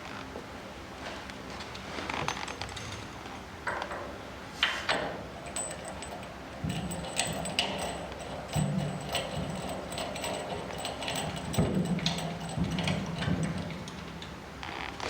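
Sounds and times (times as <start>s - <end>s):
sharp metal clanks: 4.9s - 14.6s
metal hand tools clinking: 5.4s - 14.6s.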